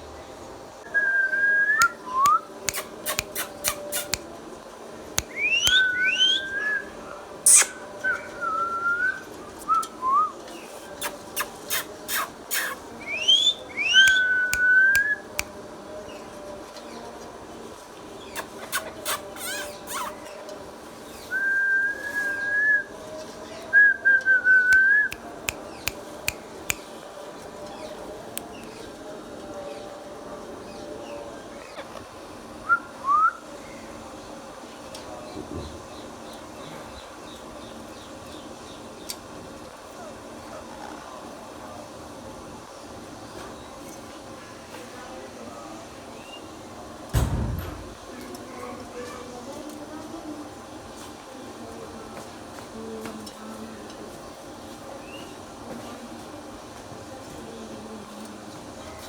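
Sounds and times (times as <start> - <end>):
short sharp clicks: 1.8 - 4.3, 5.2 - 6.0, 7.5 - 7.8, 14.0 - 15.5, 47.2 - 48.0
parrot whistling: 5.3 - 6.8, 7.5 - 8.2, 11.7 - 15.2, 18.7 - 20.2.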